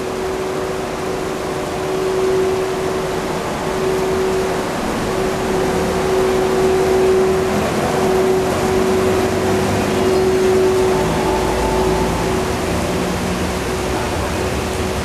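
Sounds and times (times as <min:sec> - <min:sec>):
electric locomotive humming: 0:00.0 - 0:15.0.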